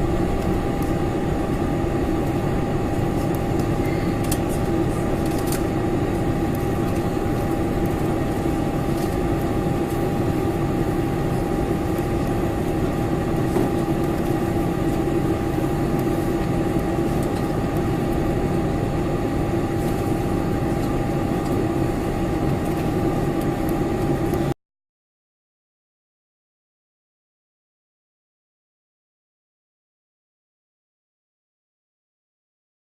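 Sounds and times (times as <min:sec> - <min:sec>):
airliner cabin engine rush: 0:00.0 - 0:24.6
faint steady whine: 0:00.0 - 0:24.6.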